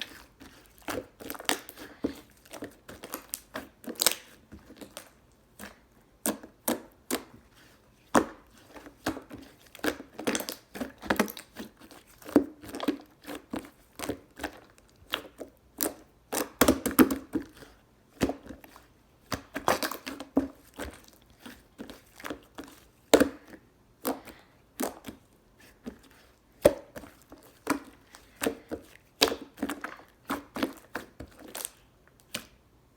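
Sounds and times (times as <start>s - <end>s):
hands squishing slime: 0.0s - 32.6s.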